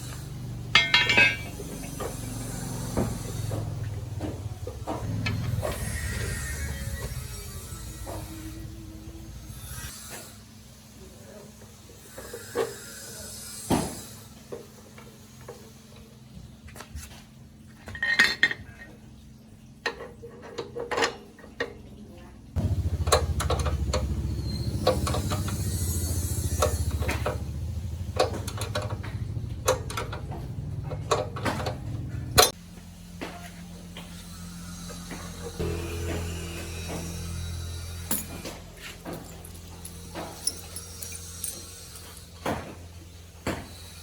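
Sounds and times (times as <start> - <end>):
metal tools clinking: 0.7 - 2.3, 17.9 - 19.0, 38.1 - 42.5
motor humming: 22.6 - 32.6.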